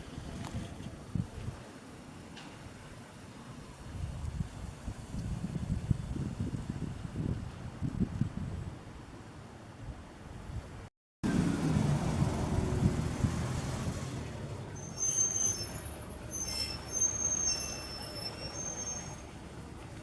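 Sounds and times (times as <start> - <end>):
vehicle rumbling past: 11.2 - 20.0
short high thin squeals: 14.7 - 19.4.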